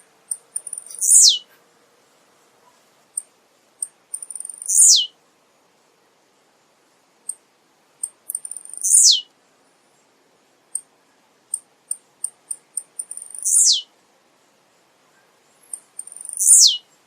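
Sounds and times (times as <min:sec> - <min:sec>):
buzzy bird song: 0:00.0 - 0:01.6, 0:04.1 - 0:05.2, 0:08.0 - 0:09.3, 0:12.2 - 0:13.9, 0:14.7 - 0:17.0
soft high bird ticks: 0:00.2 - 0:01.2, 0:03.1 - 0:04.8, 0:07.2 - 0:07.4, 0:08.0 - 0:09.0, 0:11.5 - 0:13.6, 0:15.2 - 0:16.6.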